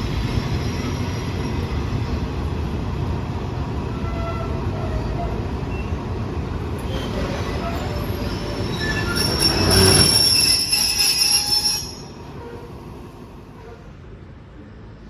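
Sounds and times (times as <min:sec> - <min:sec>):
train wheels squealing: 0:00.0 - 0:02.3, 0:06.8 - 0:12.6
train rumble: 0:00.0 - 0:15.0.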